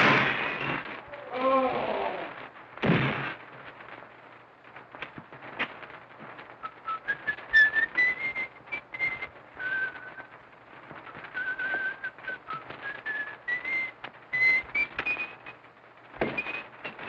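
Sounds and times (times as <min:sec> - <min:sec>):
old film soundtrack crackle: 0:00.0 - 0:17.0
person whistling a slow tune: 0:06.8 - 0:10.2, 0:11.1 - 0:15.3.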